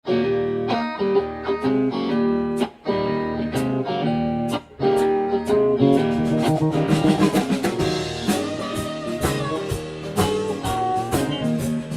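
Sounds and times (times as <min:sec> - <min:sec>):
guitar strumming chords: 0:00.1 - 0:11.9.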